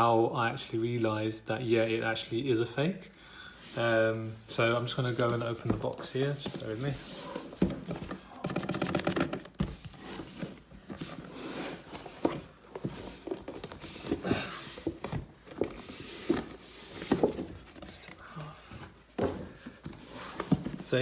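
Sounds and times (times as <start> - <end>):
box and packaging rustling: 3.7 - 21.0
knocks and taps on box: 7.6 - 9.8.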